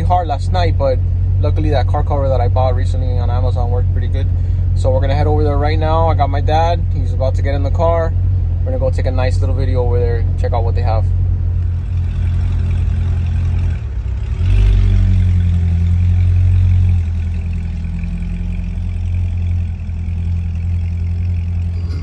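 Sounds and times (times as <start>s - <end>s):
car engine running: 0.0s - 22.0s.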